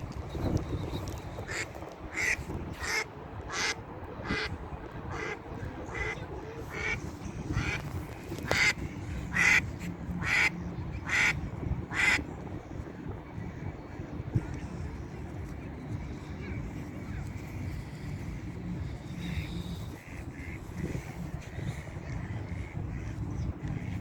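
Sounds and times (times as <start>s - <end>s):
wind noise on microphone: 0.0s - 24.0s
ducks quacking: 1.4s - 12.2s, 16.4s - 24.0s.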